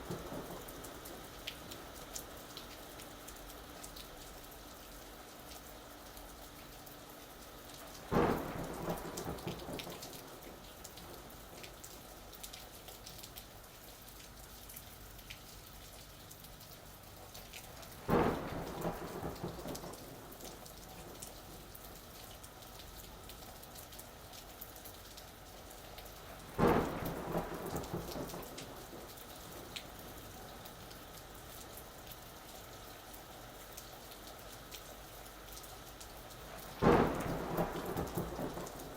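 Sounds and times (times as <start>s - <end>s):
thunder claps rumbling: 0.0s - 1.0s, 8.1s - 11.4s, 17.9s - 21.7s, 26.5s - 30.4s, 36.8s - 38.9s
steady rain falling: 0.0s - 38.9s.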